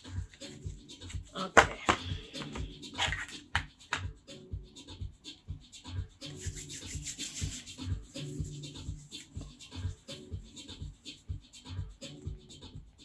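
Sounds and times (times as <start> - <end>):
quiet background music: 0.0 - 13.0
cards being shuffled: 0.3 - 4.1.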